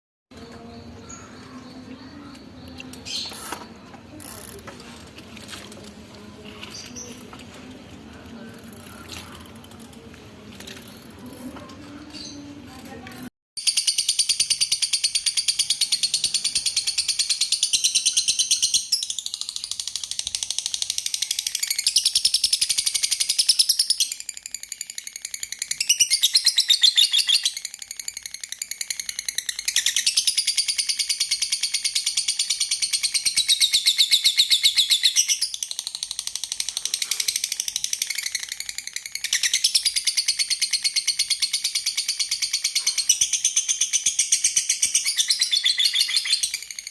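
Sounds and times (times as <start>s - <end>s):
lovebirds chattering: 0.4s - 13.2s, 32.5s - 46.9s.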